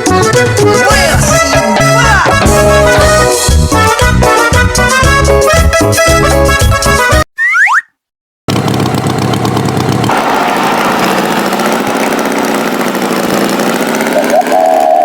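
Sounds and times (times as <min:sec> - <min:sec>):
tractor engine running: 0:08.5 - 0:15.0.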